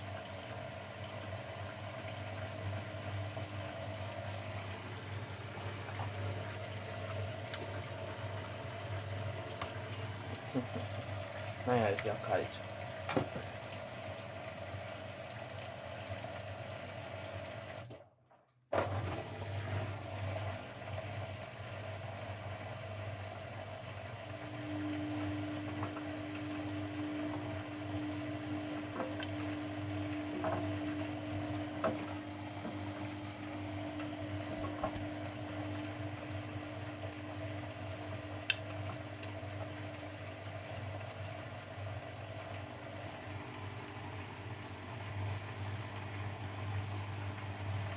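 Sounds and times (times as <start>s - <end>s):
washing machine motor hum: 0.0s - 18.1s, 18.7s - 47.9s
water sloshing in drum: 24.9s - 41.2s.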